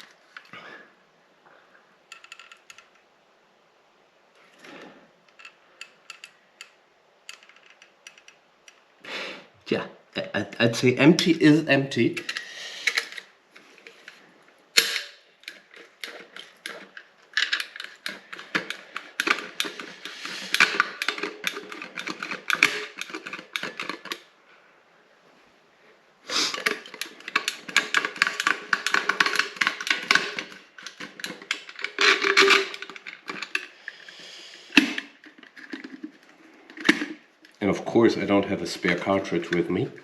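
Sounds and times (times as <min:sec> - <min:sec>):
small hard objects clattering: 0:14.8 - 0:24.2, 0:26.3 - 0:37.6.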